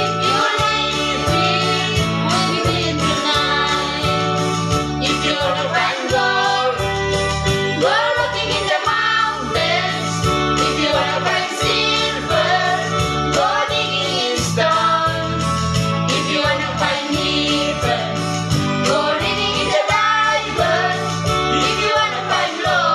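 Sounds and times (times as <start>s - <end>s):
pulsing bass accompaniment: 0.0s - 22.9s.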